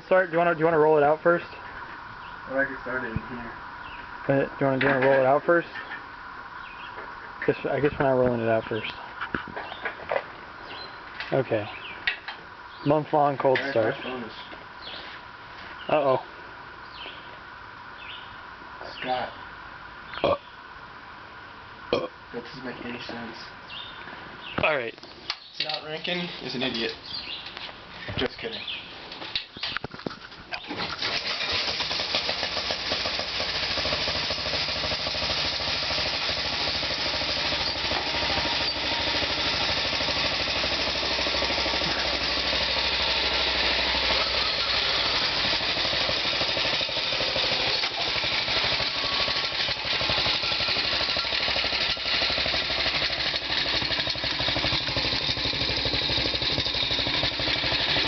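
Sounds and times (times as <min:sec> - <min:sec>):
tractor engine starting and running: 0:29.2 - 0:58.0.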